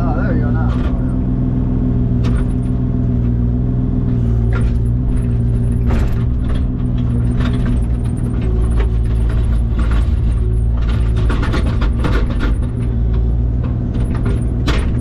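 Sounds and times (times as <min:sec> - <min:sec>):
diesel engine running: 0:00.0 - 0:15.0
machine clanking: 0:04.5 - 0:15.0.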